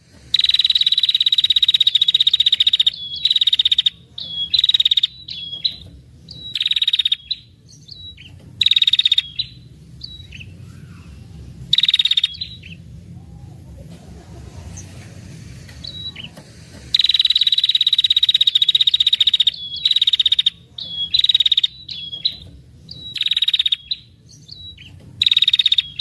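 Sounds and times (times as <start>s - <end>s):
bird chips: 0.0s - 13.0s, 14.4s - 26.0s
songbird trilling: 0.3s - 13.6s, 15.8s - 26.0s.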